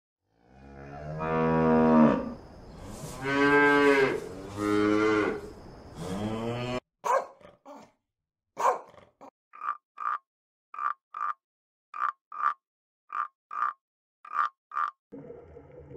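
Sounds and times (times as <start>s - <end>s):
calf mooing: 0.5s - 2.4s, 3.2s - 5.4s
small dog yapping: 7.1s - 7.3s, 8.6s - 8.8s.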